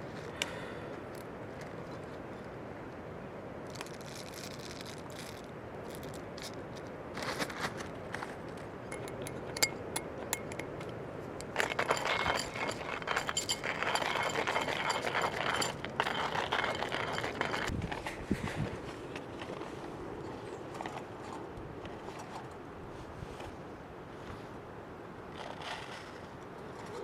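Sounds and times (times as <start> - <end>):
coffee beans clinking: 8.9 - 10.8, 11.4 - 17.7
hand coffee mill grinding: 11.4 - 17.7.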